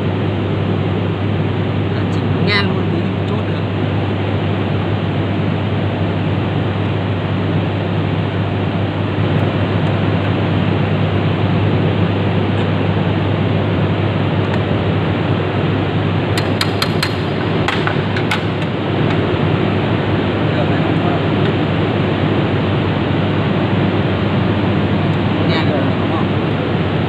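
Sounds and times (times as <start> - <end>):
machine humming: 0.0 - 27.0
sharp metallic clicks: 16.4 - 19.2.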